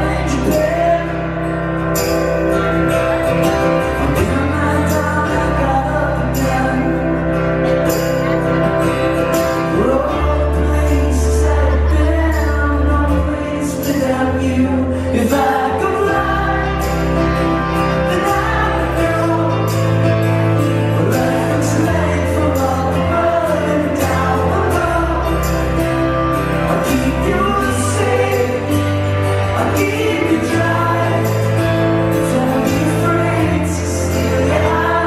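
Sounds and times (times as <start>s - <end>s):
man singing: 0.0s - 2.9s, 3.8s - 35.0s
bass notes: 0.0s - 35.0s
pop-rock band playing: 0.0s - 35.0s.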